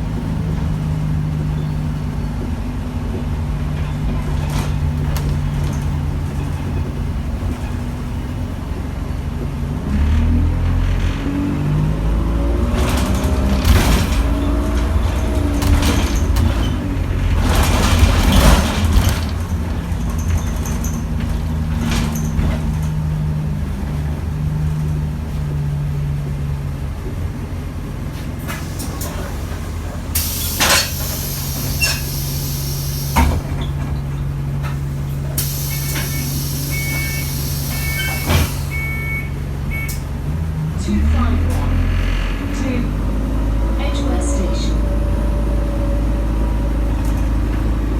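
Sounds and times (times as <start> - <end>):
bus diesel engine pulling away: 0.0 - 47.9
compressed air hiss: 30.1 - 33.2, 35.4 - 38.7.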